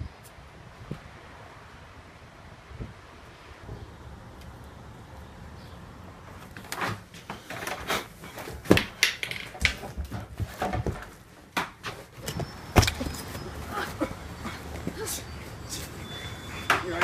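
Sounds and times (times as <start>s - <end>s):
faint wind: 0.0s - 17.0s
people scuffling: 9.8s - 17.0s.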